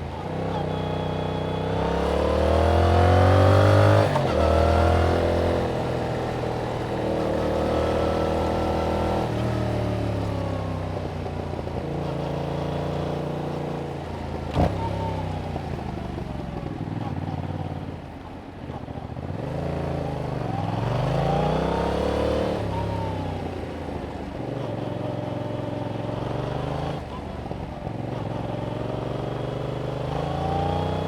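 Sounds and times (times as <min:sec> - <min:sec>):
motorcycle engine revving: 0:00.1 - 0:11.2, 0:18.7 - 0:31.0.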